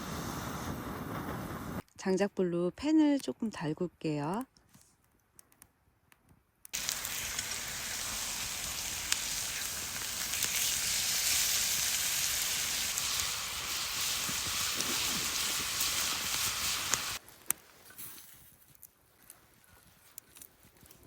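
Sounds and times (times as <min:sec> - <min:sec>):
sharp crackles: 0:06.7 - 0:17.6
meat sizzling in a frying pan: 0:06.8 - 0:17.2.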